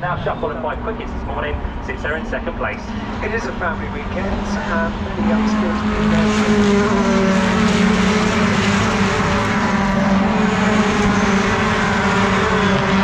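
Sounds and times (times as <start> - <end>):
diesel engines droning: 0.0 - 13.0.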